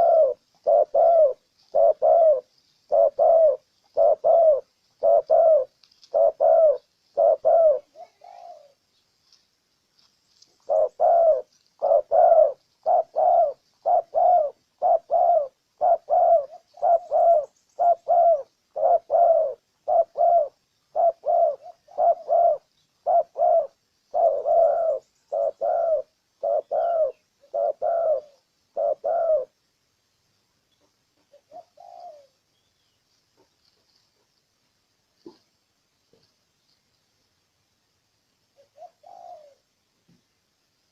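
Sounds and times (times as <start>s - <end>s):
dove cooing: 0.0s - 8.8s, 10.5s - 29.6s, 30.8s - 32.5s, 35.2s - 36.3s, 38.5s - 39.7s.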